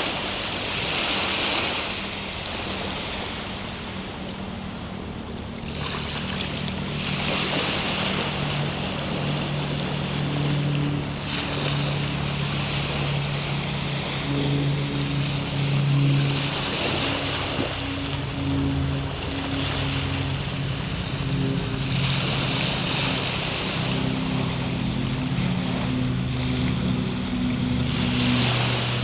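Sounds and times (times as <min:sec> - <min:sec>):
ocean waves breaking: 0:00.0 - 0:29.0
calm ambient music: 0:10.2 - 0:29.0.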